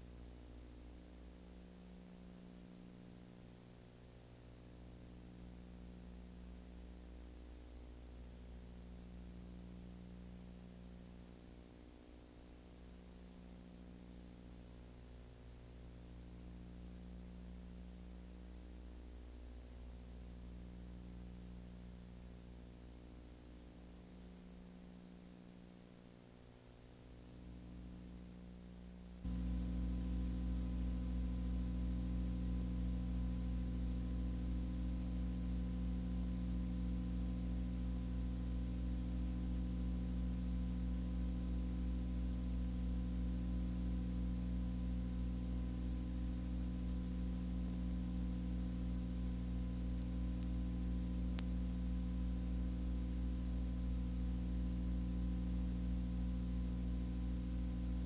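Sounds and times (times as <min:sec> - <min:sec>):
low hum with hiss: 0:00.0 - 0:58.0
faint click: 0:47.3 - 0:55.9.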